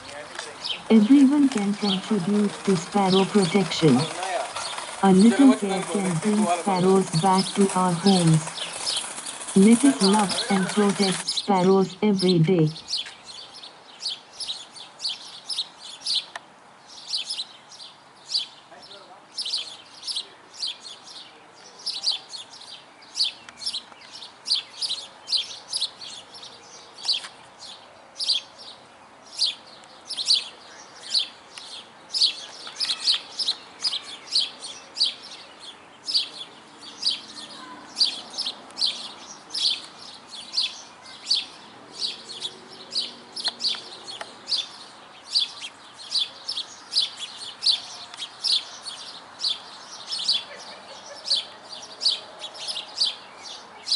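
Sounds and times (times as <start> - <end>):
sparrows chirping: 0.0 - 53.9.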